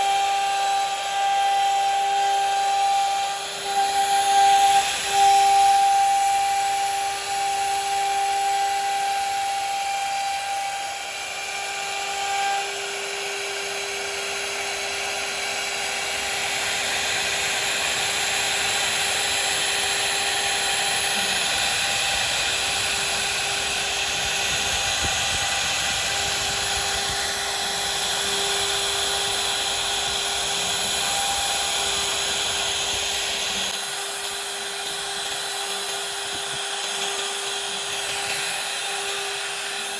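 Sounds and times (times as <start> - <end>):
bit cutting wood hiss: 0.0 - 39.9
router spindle whine: 0.0 - 39.9.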